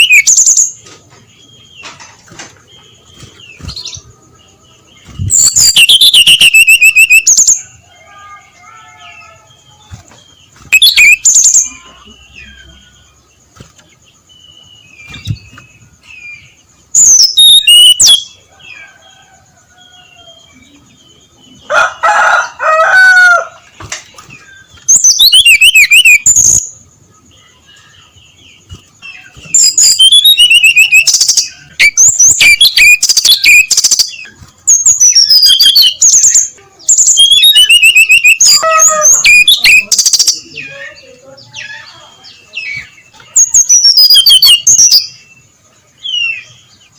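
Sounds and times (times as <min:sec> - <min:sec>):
bird singing whistled phrases: 0:00.0 - 0:00.7, 0:05.1 - 0:07.7, 0:10.7 - 0:11.8, 0:17.0 - 0:18.3, 0:24.9 - 0:26.8, 0:29.4 - 0:40.5, 0:43.3 - 0:45.2.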